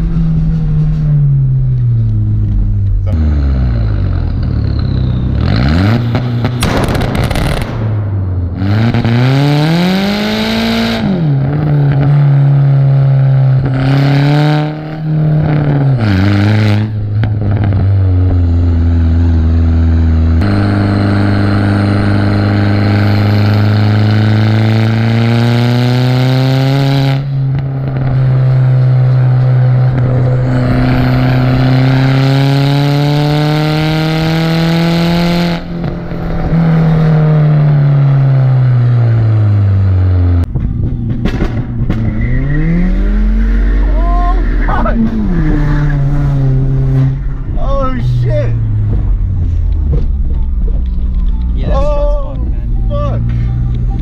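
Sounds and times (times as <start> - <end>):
car engine accelerating hard: 0.0 - 54.0
rushing noise: 27.2 - 34.7.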